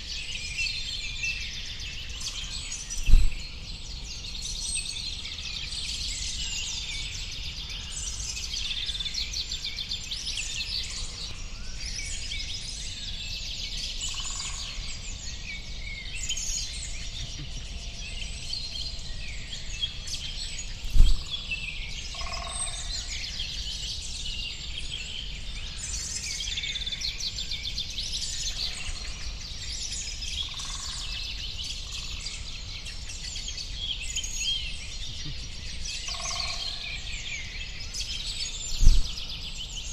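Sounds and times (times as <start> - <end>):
sharp thump: 3.0 - 3.5, 20.9 - 21.3, 38.8 - 39.2
small birds chirping: 11.7 - 39.9.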